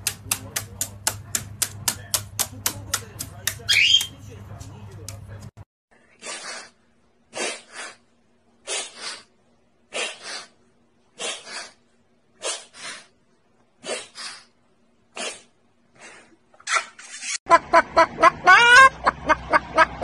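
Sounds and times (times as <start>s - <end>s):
animal sneeze-like huffs: 7.3s - 8.0s, 8.6s - 9.3s, 9.9s - 10.6s, 11.2s - 11.8s, 12.4s - 13.1s, 13.8s - 14.5s, 15.1s - 16.3s.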